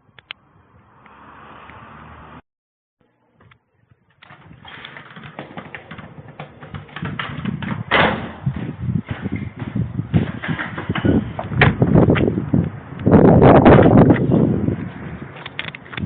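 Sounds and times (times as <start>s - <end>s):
knocking and rattling: 4.2s - 12.3s
wind rumble on microphone: 4.3s - 16.0s.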